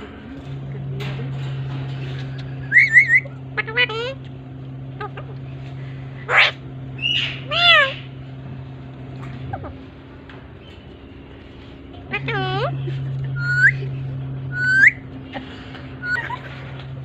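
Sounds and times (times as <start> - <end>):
steady low hum: 0.0 - 17.0
parrot calling: 2.6 - 4.3, 5.0 - 8.2, 12.1 - 13.9, 14.5 - 16.7
parrot squawk: 2.7 - 4.2, 6.2 - 8.1, 13.4 - 13.8, 14.5 - 15.0, 16.0 - 16.6.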